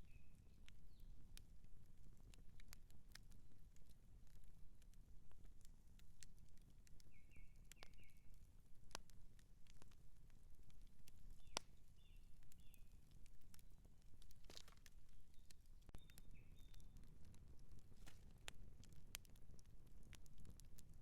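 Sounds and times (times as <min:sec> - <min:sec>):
campfire crackling and popping: 0:00.0 - 0:21.0
bird chirping: 0:16.0 - 0:16.9.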